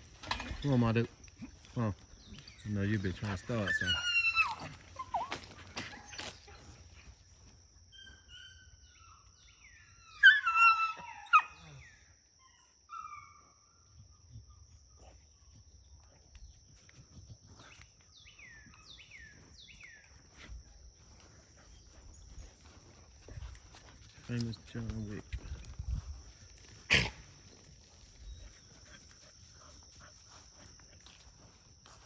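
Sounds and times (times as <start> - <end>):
dog whining and yelping: 3.6 - 6.8, 7.9 - 13.5.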